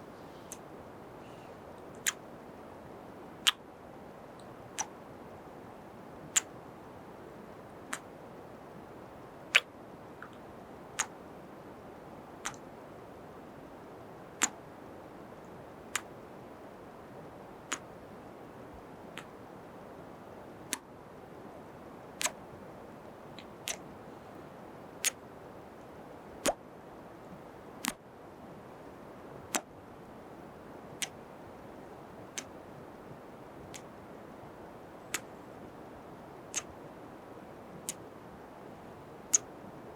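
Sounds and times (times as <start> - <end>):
faint steady hiss: 0.0 - 39.9
lip smacking kiss sounds: 2.0 - 2.2.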